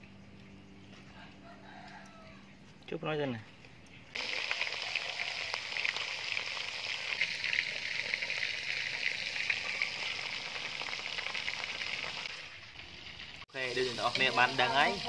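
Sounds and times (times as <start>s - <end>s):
food frying in hot oil: 4.0s - 15.0s.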